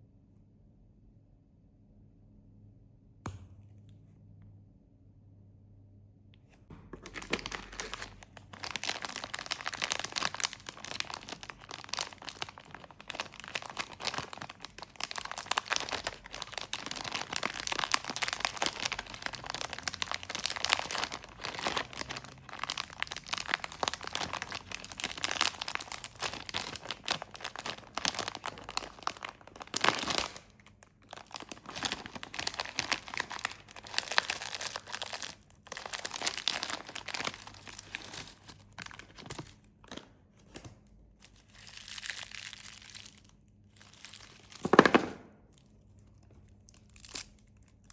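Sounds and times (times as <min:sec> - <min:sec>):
plastic wrappers crinkling and tearing: 0:07.0 - 0:47.9.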